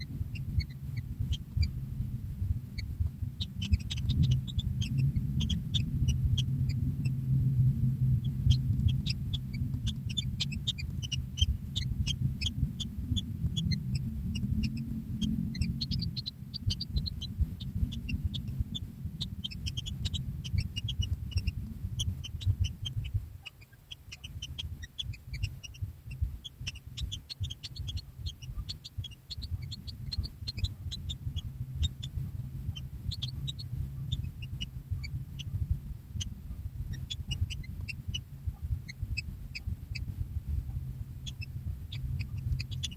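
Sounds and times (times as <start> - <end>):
loud low rumble: 0.0 - 23.4, 24.1 - 42.9
chicks peeping: 0.0 - 42.9.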